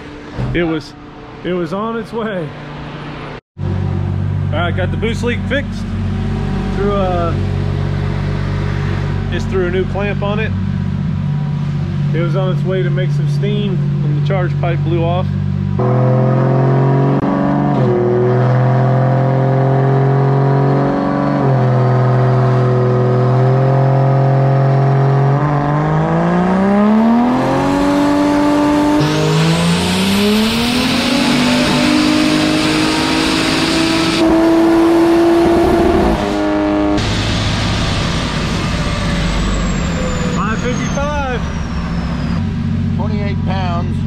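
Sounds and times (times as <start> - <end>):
engine revving on a dyno: 11.2 - 43.8.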